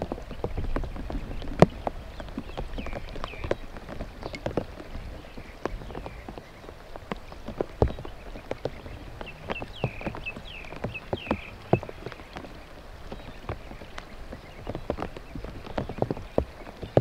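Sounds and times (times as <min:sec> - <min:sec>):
rain hiss: 0:00.0 - 0:17.0
raindrops tapping and dripping: 0:00.0 - 0:17.0.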